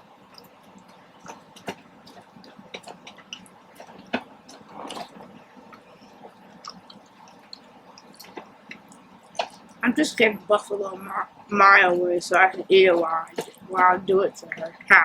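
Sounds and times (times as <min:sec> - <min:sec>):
wet chewing: 0:00.2 - 0:09.8, 0:12.5 - 0:14.9
mouth clicks and smacks: 0:00.3 - 0:09.8.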